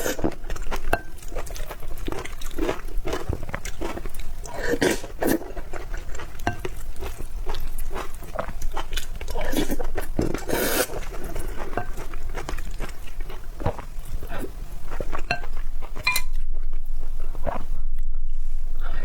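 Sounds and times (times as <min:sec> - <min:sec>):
utensils clinking against a bowl: 0:00.0 - 0:07.2, 0:09.3 - 0:12.8, 0:15.1 - 0:16.4.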